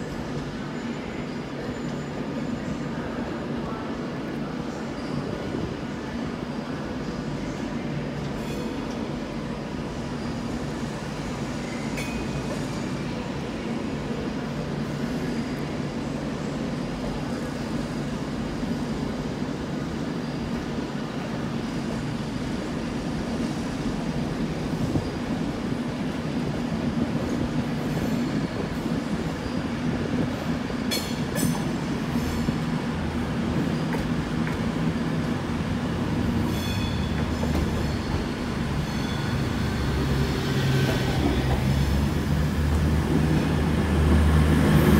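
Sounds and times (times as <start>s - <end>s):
train rumbling: 0.0s - 44.9s
train wheel squealing: 4.9s - 5.6s, 27.7s - 32.6s, 36.3s - 41.8s.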